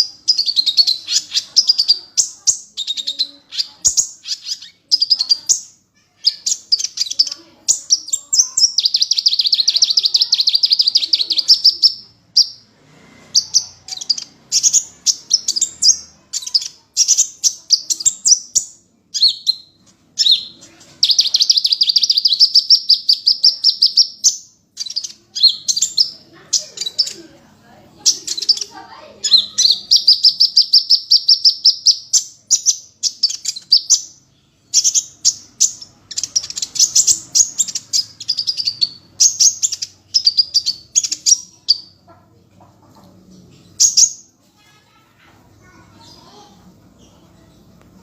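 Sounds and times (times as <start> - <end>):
rapid bird trill: 0.0 - 12.7, 19.2 - 27.2
songbird singing: 0.0 - 44.3.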